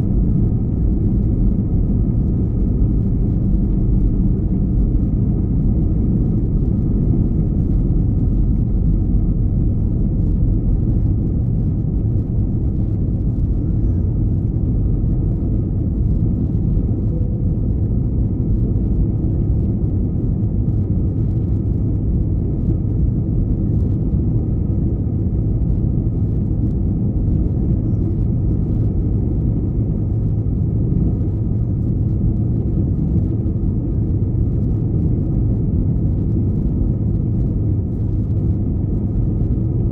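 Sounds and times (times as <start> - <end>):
faint steady hum: 0.0 - 39.9
jet engine and airflow noise: 0.0 - 39.9.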